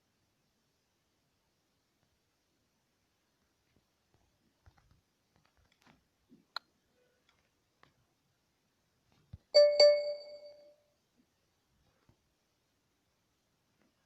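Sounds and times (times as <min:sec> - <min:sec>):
bell-like chime: 0:09.6 - 0:10.8.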